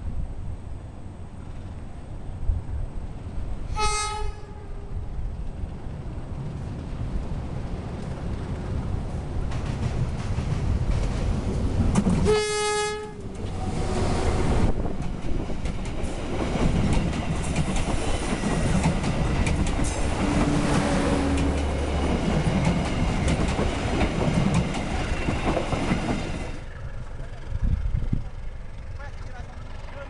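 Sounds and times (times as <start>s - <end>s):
train horn blast: 3.7s - 5.1s, 12.2s - 14.2s, 20.2s - 21.7s
locomotive engine: 4.9s - 30.0s
train wheels clattering over rails: 7.8s - 12.3s, 13.2s - 30.0s.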